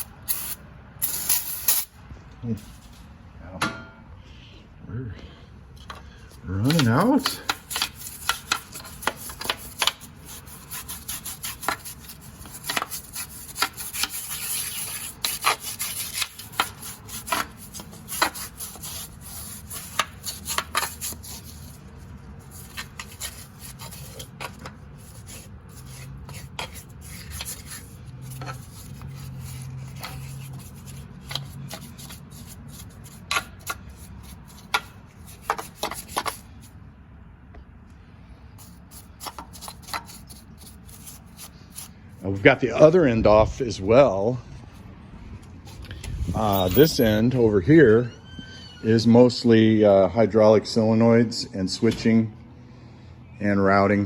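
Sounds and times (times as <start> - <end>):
rubbing and scraping: 6.3 - 36.8, 38.6 - 47.5.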